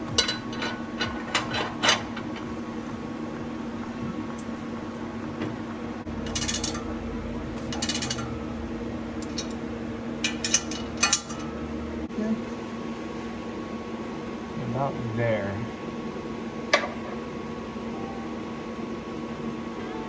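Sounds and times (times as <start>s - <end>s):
metal pipes clinking: 0.0s - 3.0s, 6.1s - 9.6s, 10.2s - 11.9s
metallic rattles: 0.0s - 4.5s, 5.4s - 9.6s, 10.2s - 11.9s
steady hum: 0.0s - 20.0s.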